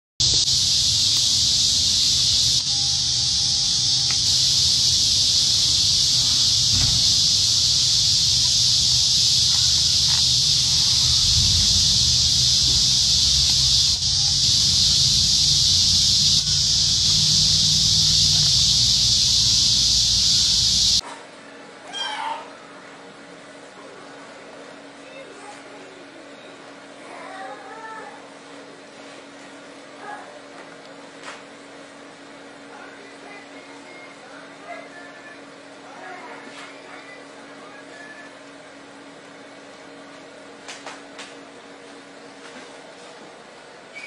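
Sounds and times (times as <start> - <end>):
insect chorus: 0.2 - 21.0
low rumble: 0.3 - 21.0.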